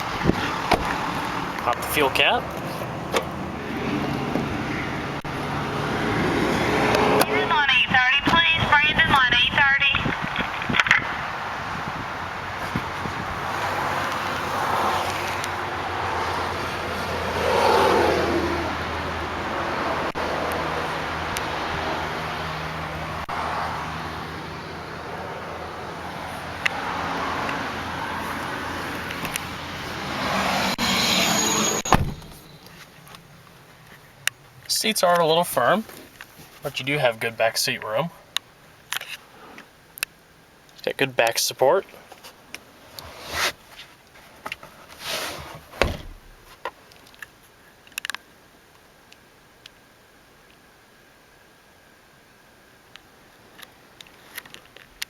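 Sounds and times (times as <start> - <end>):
vehicle passing: 0.0 - 7.8, 10.7 - 32.5
road traffic going by: 0.0 - 55.0
car door shutting thud: 0.2 - 1.0, 31.8 - 32.4, 45.8 - 46.4
dull thump: 31.9 - 32.4, 45.8 - 46.5.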